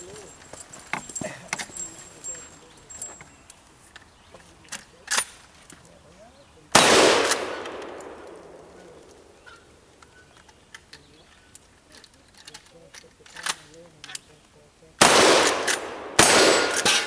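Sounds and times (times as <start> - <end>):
loud gunshot with echo: 6.8 - 9.6, 15.0 - 17.0.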